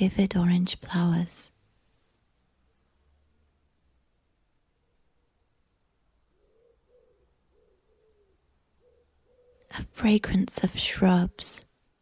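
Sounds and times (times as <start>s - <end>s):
crickets chirping: 1.5s - 9.6s.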